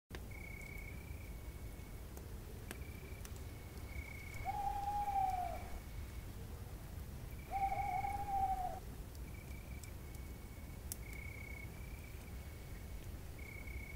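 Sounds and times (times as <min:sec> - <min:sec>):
insects chirring: 0:00.3 - 0:02.1, 0:02.7 - 0:05.9, 0:07.2 - 0:13.9
faint clicks: 0:02.1 - 0:04.6, 0:05.2 - 0:05.5, 0:09.1 - 0:11.4
owl hoots: 0:04.3 - 0:05.8, 0:07.4 - 0:08.8.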